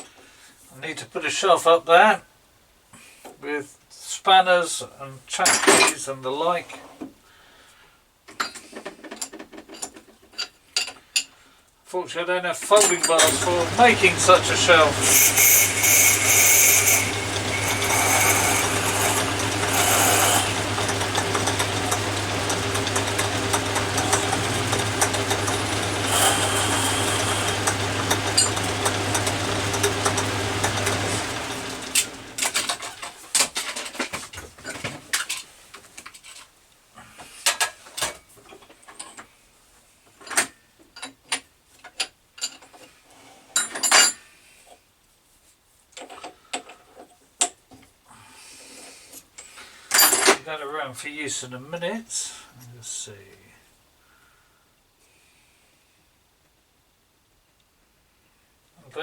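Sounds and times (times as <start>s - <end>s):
metal lathe motor hum: 13.0s - 32.6s.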